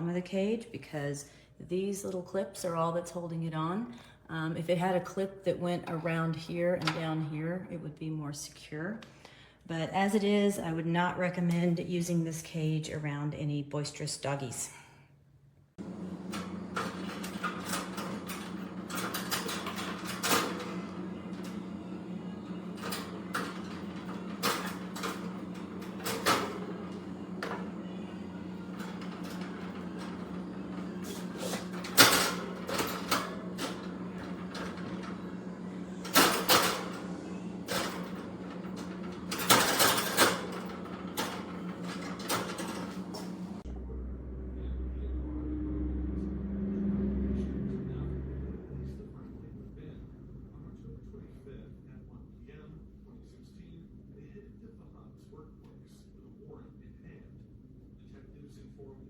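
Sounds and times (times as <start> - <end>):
steady low hum: 14.7 - 59.0.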